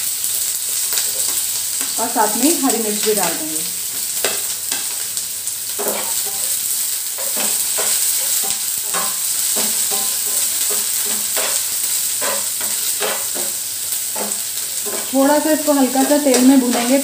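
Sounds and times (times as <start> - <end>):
onions sizzling in hot oil: 0.0 - 17.0
spatula scraping a pan: 5.7 - 17.0.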